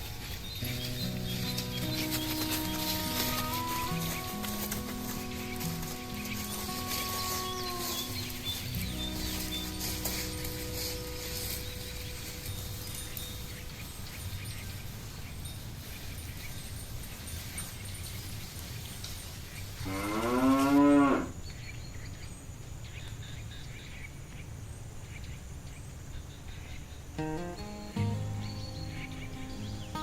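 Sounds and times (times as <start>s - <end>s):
cow mooing: 19.9s - 21.3s.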